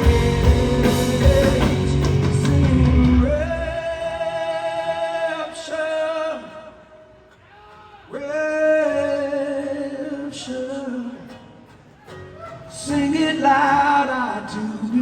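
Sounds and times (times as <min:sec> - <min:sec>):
quiet rock band: 0:00.0 - 0:06.5
man singing long notes: 0:00.0 - 0:06.7.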